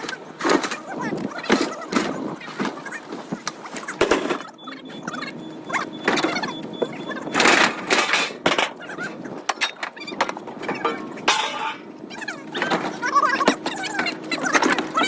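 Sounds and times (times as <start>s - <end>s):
voices talking: 0.0s - 15.0s
scrap metal crashing: 7.4s - 8.8s, 10.6s - 11.9s.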